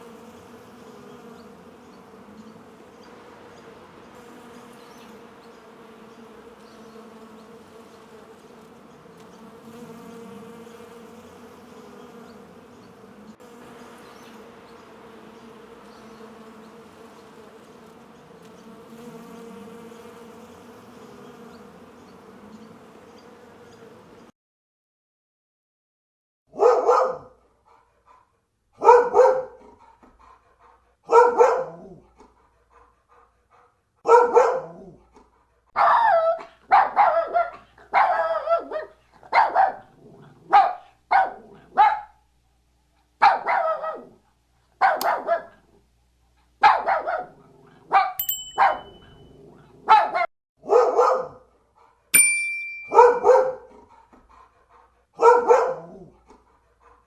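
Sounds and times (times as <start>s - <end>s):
dog barking: 26.5s - 27.5s, 28.8s - 30.0s, 31.0s - 32.2s, 34.0s - 35.0s, 35.8s - 42.2s, 43.2s - 44.2s, 44.8s - 45.7s, 46.6s - 51.5s, 52.9s - 54.1s, 55.2s - 57.0s.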